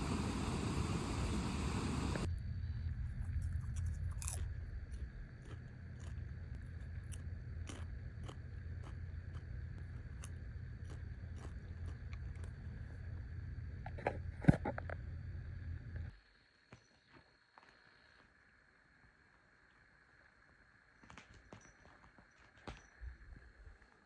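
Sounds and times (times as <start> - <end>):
steady rushing noise: 0.0 - 2.3
low hum: 0.0 - 16.1
person chewing crisp food: 3.2 - 13.2.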